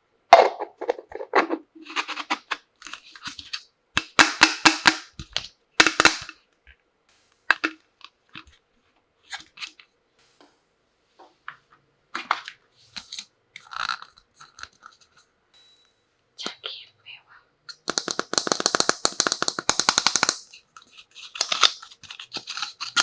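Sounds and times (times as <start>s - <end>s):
toy tea-set pieces clicking: 17.7s - 23.0s.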